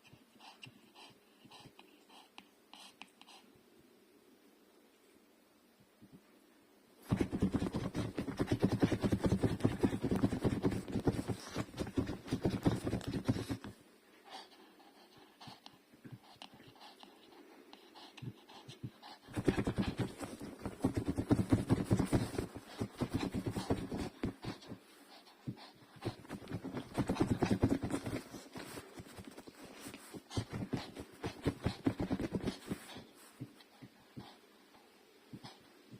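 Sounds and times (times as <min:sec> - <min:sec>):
dog scratching and pawing: 0:07.1 - 0:13.7, 0:19.3 - 0:24.8, 0:26.0 - 0:33.5.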